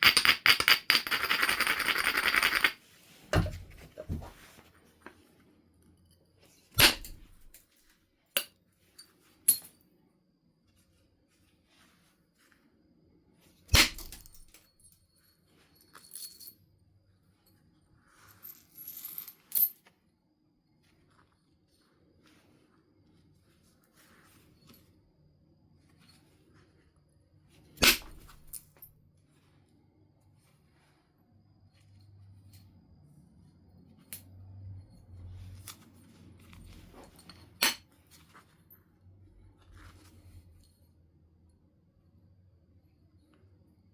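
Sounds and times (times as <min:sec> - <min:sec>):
soft stone clinks and rustling: 0:14.0 - 0:19.9, 0:34.0 - 0:41.0.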